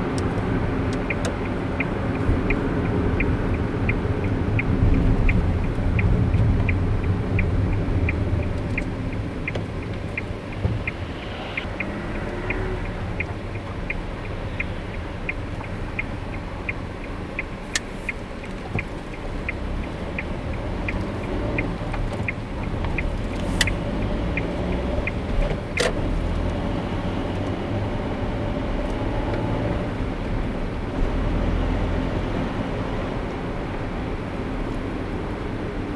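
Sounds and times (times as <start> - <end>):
car road and engine rumble: 0.0 - 35.9
turn signal ticking: 0.0 - 35.9
sharp clicks: 0.1 - 26.6.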